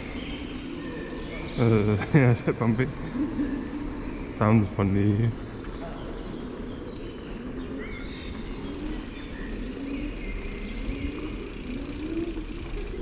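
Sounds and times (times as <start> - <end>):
small birds chirping: 0.0 - 13.0
bicycle rolling over bumpy path: 8.8 - 13.0.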